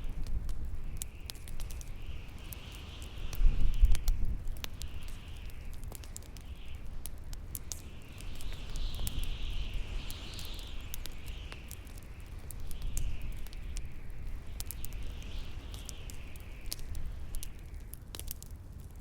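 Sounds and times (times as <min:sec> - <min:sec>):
bonfire crackling and popping: 0:00.0 - 0:19.0
howling wind: 0:00.0 - 0:19.0.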